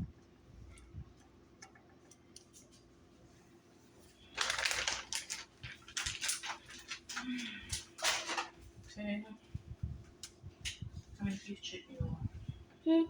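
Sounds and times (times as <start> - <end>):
croutons rattling in a bag: 4.3 - 8.5.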